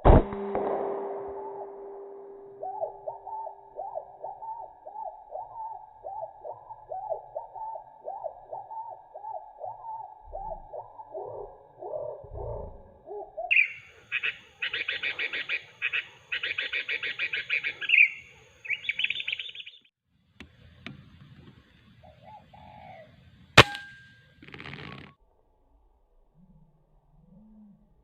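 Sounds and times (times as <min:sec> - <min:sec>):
air rifle shot: 0:00.0 - 0:02.8, 0:23.6 - 0:24.0
small bird chirping: 0:13.2 - 0:19.9.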